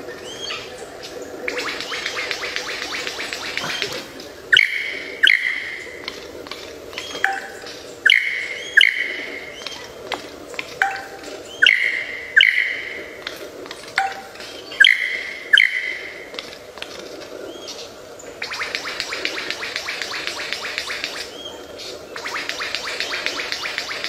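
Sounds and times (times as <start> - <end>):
songbird sharp clear calls: 1.5 - 6.0, 7.0 - 9.9, 10.8 - 13.2, 14.0 - 16.2.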